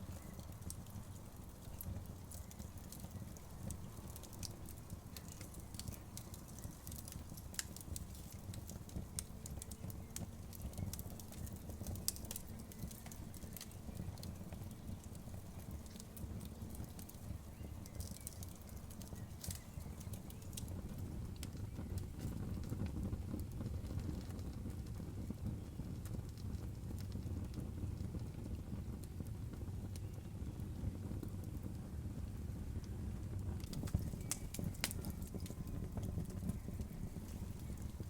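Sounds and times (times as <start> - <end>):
bonfire crackling pops and snaps: 0.0 - 38.0
low rumble of burning: 0.0 - 38.0.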